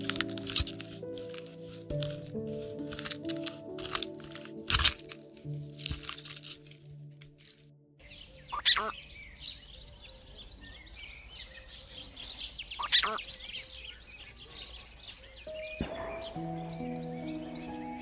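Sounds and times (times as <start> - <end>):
birds chirping: 8.0 - 18.0
loud bird calls: 8.0 - 18.0.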